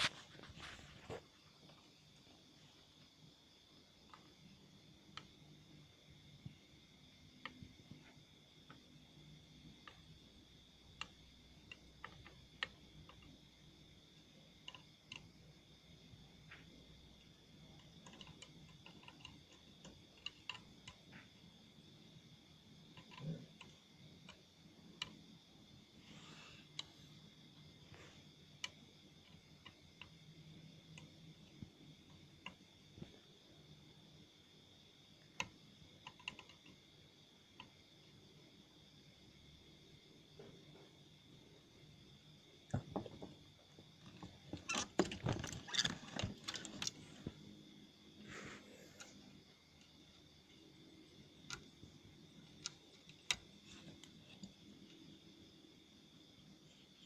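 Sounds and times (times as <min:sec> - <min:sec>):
faint high-pitched whine: 0:00.0 - 0:57.0
faint light clicks and ticks: 0:10.8 - 0:21.8, 0:35.2 - 0:36.9, 0:37.5 - 0:37.8, 0:49.0 - 0:55.1.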